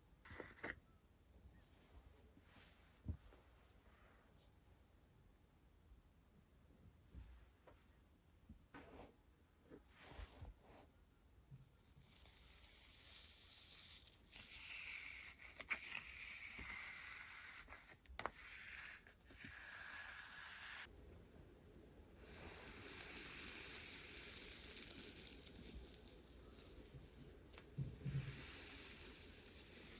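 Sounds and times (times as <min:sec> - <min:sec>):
slime squishing and crackling: 0:22.2 - 0:29.9.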